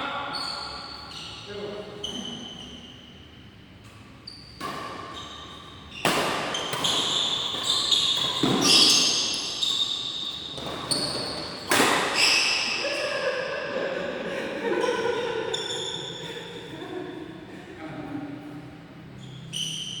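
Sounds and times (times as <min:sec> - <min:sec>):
shoes squeaking on court floor: 0:00.3 - 0:12.7, 0:15.5 - 0:16.3, 0:19.0 - 0:20.0.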